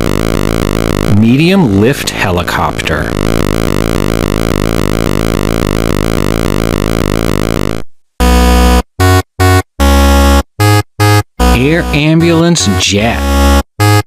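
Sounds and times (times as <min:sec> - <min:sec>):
synthesized buzzing tone: 0:00.0 - 0:14.0.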